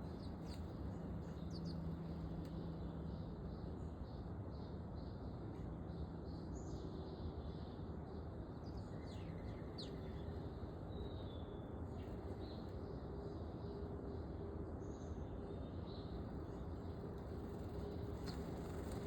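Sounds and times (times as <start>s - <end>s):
songbirds chirping: 0.0s - 19.0s
low background rumble: 15.9s - 19.0s.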